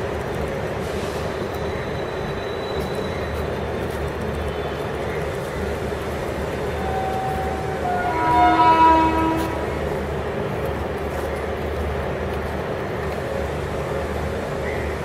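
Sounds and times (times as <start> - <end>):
train rumble: 0.0 - 15.0
train horn: 6.7 - 9.8.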